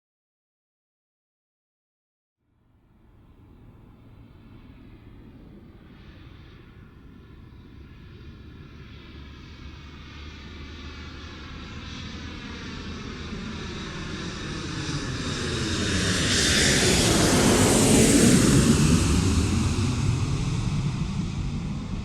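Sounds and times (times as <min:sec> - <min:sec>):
aircraft engine approaching: 0:02.9 - 0:22.0.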